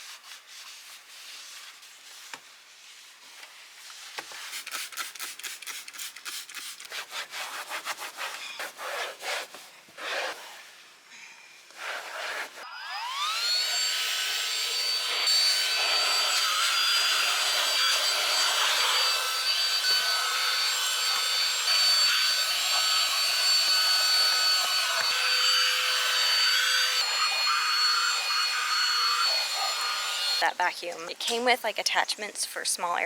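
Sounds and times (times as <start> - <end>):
handheld vacuum motor whine: 12.1 - 31.2.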